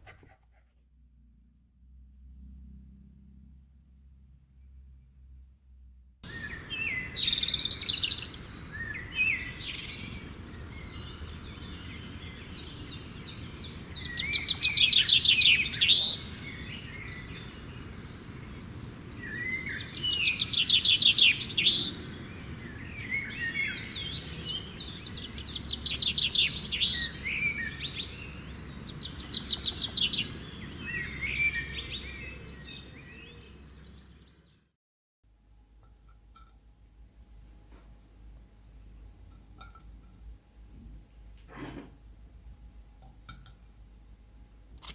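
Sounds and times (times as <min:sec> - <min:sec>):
low background rumble: 0:00.8 - 0:06.3
songbirds singing: 0:06.2 - 0:34.8.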